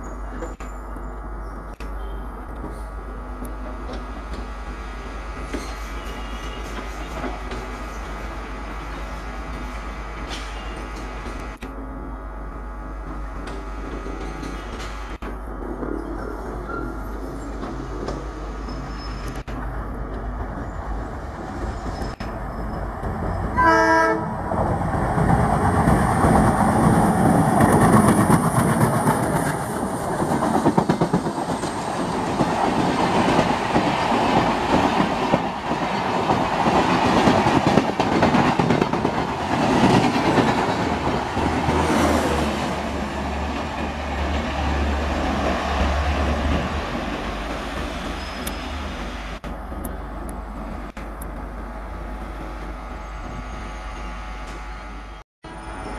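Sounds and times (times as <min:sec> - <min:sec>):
train rushing past: 0:13.7 - 0:55.9
train horn: 0:23.6 - 0:24.4
wheels clattering on rails: 0:24.5 - 0:51.6.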